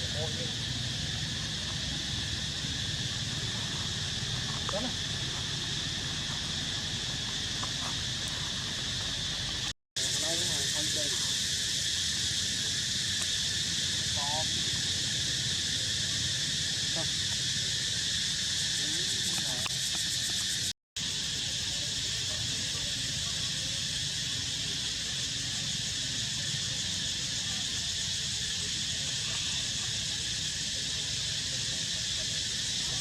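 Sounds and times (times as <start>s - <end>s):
insect chorus: 0.0s - 33.0s.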